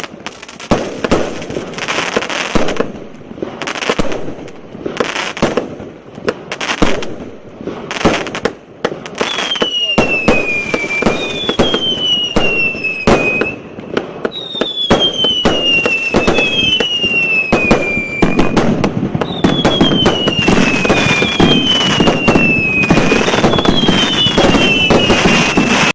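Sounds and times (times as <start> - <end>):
firework bangs: 0.0 - 25.9
firework crackling: 0.0 - 25.9
falling firework whistles: 6.5 - 25.9.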